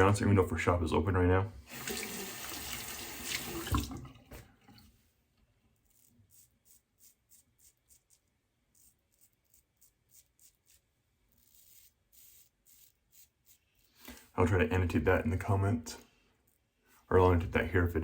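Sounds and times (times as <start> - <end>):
razor blade scraping stubble: 5.8 - 14.1.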